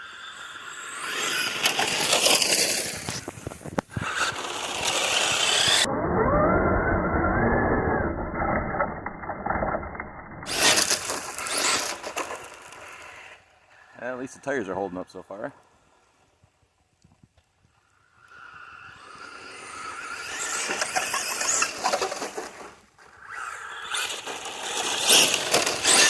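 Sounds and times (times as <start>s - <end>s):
electric motor whining: 0.0s - 8.1s, 18.1s - 26.0s
tires churning over ground: 0.0s - 16.4s, 17.2s - 26.0s.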